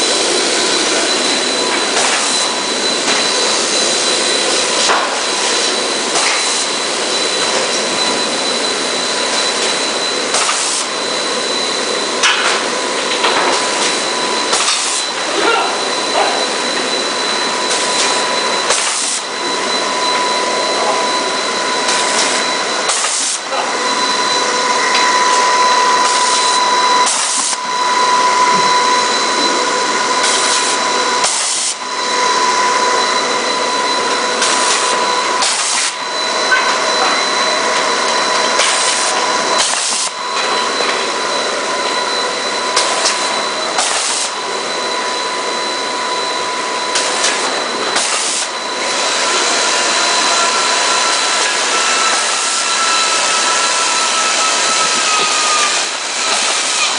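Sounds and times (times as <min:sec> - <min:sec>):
extrusion machinery hissing: 0:00.0 - 0:56.9.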